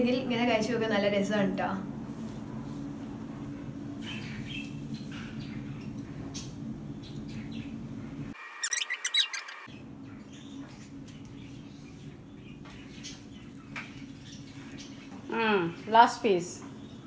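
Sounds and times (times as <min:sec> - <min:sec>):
steady low hum: 0:00.0 - 0:08.4
small bird chirping: 0:08.5 - 0:15.4.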